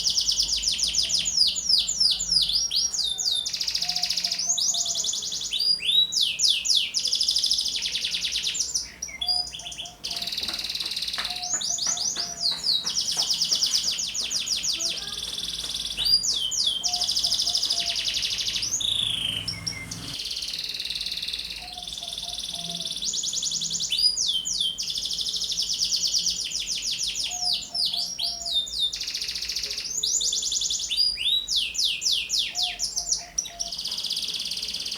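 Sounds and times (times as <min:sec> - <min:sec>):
canary trilling song: 0:00.0 - 0:34.9.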